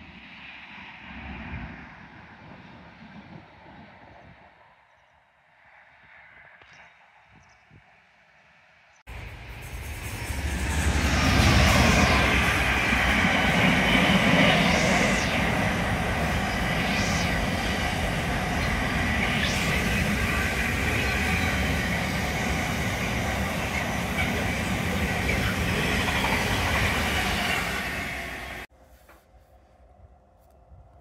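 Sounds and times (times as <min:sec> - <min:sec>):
faint high whine: 0:09.1 - 0:28.7
freight train wagons rumbling past: 0:09.1 - 0:28.7.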